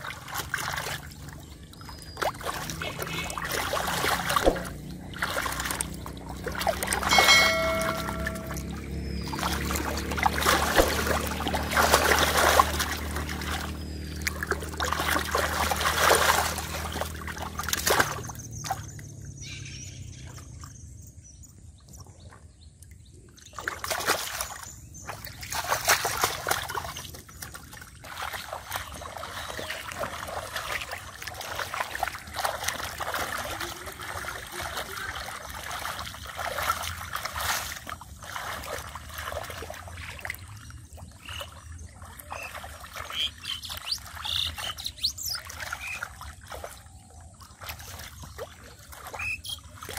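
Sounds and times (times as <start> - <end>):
muddy water splashing: 0.0 - 20.9, 21.9 - 49.9
low steady hum: 1.0 - 19.5.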